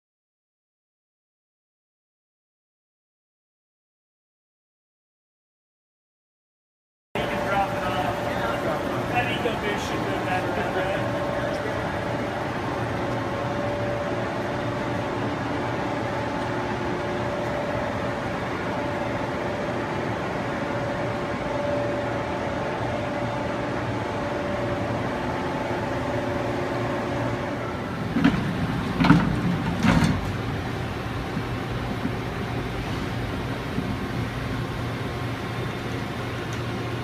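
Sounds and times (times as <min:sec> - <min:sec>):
lathe machine hum: 0:07.2 - 0:37.0
clunks: 0:28.1 - 0:30.5.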